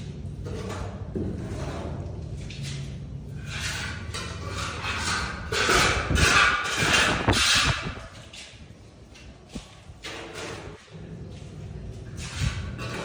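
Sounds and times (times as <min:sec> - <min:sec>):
rough loud scraping strokes: 0:03.3 - 0:08.8.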